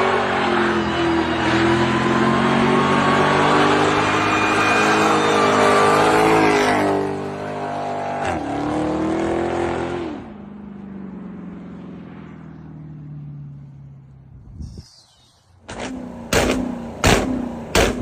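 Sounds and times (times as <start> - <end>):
sports car engine revving: 15.6 - 18.0.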